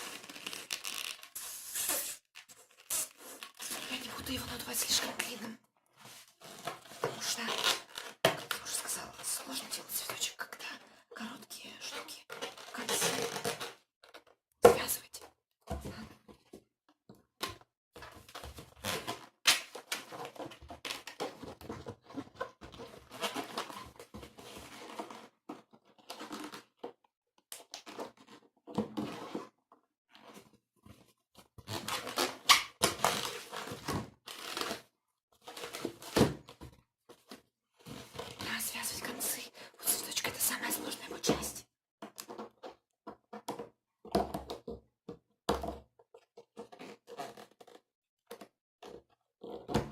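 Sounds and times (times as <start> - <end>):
rubber balloon rubbing and twisting: 0.0 - 10.3, 12.0 - 13.8, 18.2 - 26.8, 31.5 - 36.3, 46.5 - 47.8.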